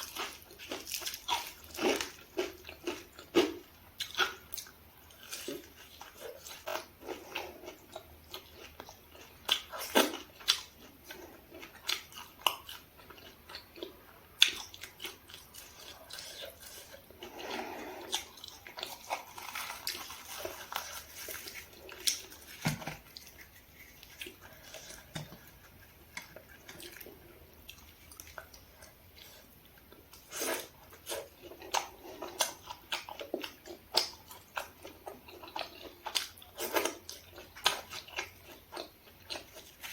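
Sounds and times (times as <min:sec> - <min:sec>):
person biting and chewing food: 0:00.0 - 0:29.5.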